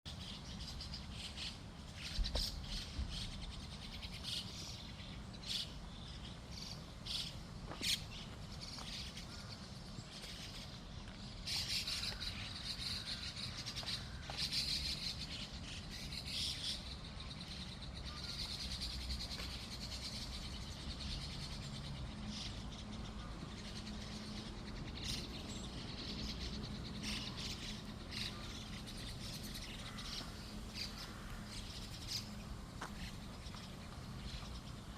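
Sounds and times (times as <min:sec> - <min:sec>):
small birds chirping and twittering: 0:00.1 - 0:34.9.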